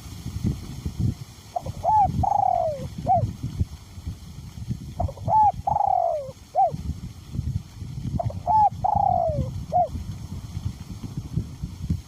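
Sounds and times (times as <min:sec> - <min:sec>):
wind rumble on microphone: 0:00.0 - 0:12.0
dove cooing: 0:01.6 - 0:03.3, 0:05.0 - 0:06.8, 0:08.2 - 0:10.0.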